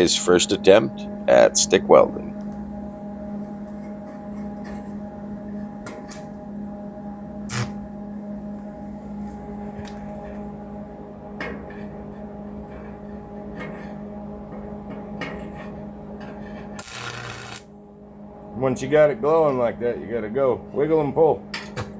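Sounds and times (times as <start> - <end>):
welding machine humming: 7.4 - 7.9, 16.7 - 17.8.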